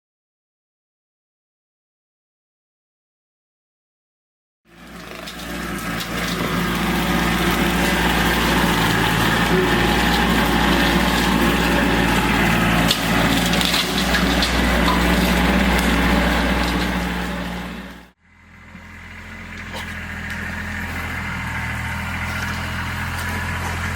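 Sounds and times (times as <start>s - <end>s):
wood cracking and splintering: 4.7s - 18.1s, 19.6s - 23.9s
brush-clearing machine engine: 4.7s - 23.9s.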